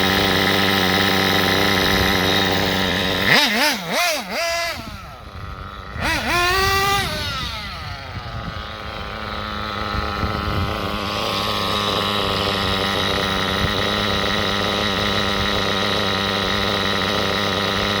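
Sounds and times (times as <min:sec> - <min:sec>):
nitro engine revving and idling: 0:00.0 - 0:18.0.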